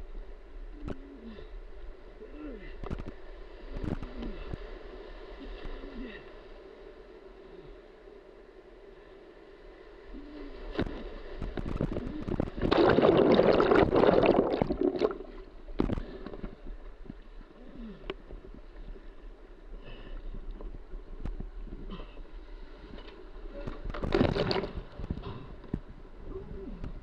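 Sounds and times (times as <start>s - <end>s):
rushing whitewater splashing: 12.2s - 15.4s.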